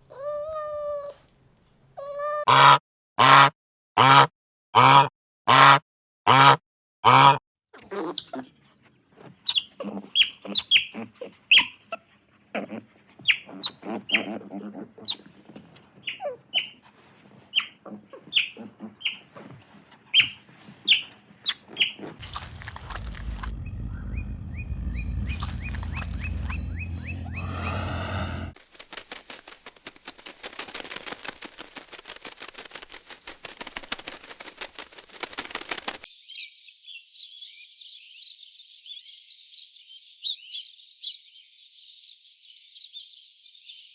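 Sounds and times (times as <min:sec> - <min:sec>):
birds chirping: 0:22.2 - 0:28.6
steady low rumble: 0:22.2 - 0:28.6.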